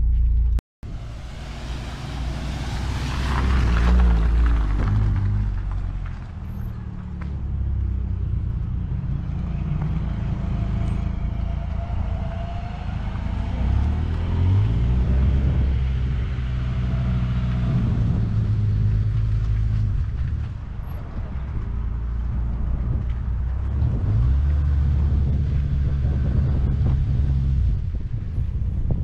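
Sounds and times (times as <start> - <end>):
car engine and exhaust: 0.0 - 29.0.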